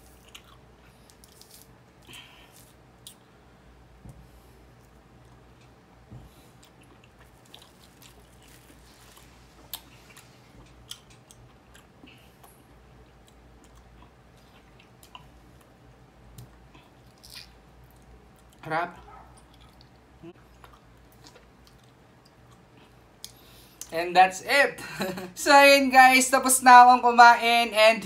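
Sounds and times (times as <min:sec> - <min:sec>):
wet chewing and lip-smacking: 0:06.6 - 0:23.9.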